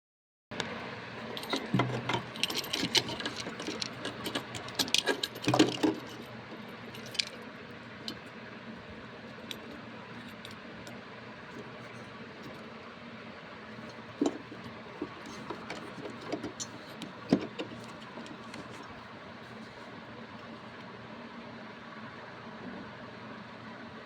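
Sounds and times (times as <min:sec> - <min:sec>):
small hard parts clicking: 0:00.6 - 0:07.5, 0:13.9 - 0:19.0.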